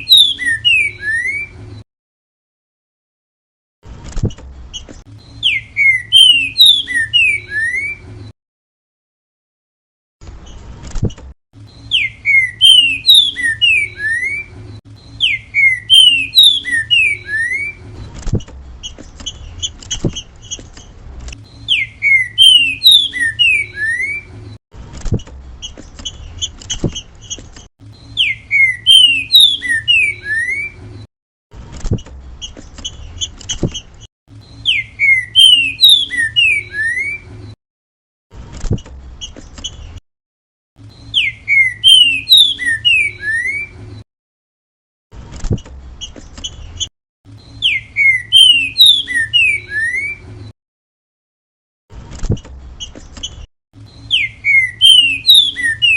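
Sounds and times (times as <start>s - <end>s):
bird singing whistled phrases: 0.0s - 1.6s, 5.3s - 8.0s, 11.7s - 17.8s, 21.5s - 24.3s, 28.0s - 30.8s, 34.4s - 37.3s, 40.9s - 43.8s, 47.4s - 50.2s, 53.9s - 55.9s.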